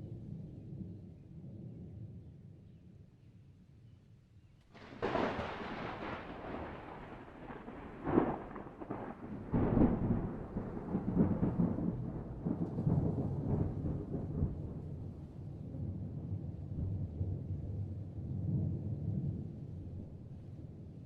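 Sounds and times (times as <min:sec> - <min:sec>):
thunder crack and rumble: 0:04.7 - 0:21.0.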